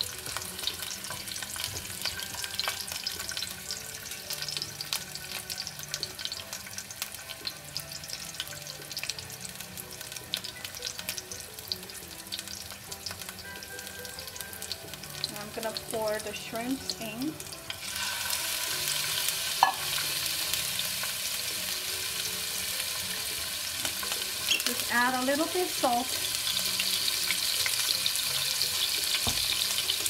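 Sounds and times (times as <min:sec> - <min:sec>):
oil sizzling in a pan: 0:00.0 - 0:30.0
spatula stirring in a pan: 0:00.1 - 0:04.6.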